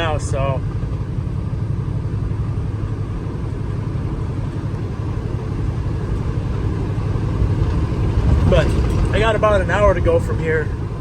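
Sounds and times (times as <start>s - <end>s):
road noise: 0.0s - 11.0s
truck diesel engine droning: 0.0s - 11.0s.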